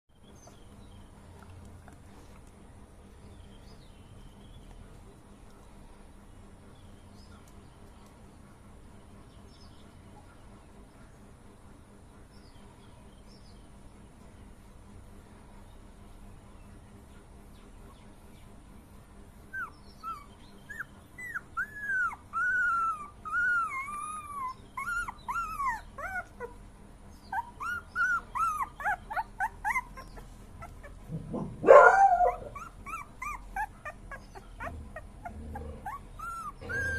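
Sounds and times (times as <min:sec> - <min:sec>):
puppy yelp: 0:19.5 - 0:26.6, 0:27.3 - 0:36.9
puppy whining: 0:19.5 - 0:36.9.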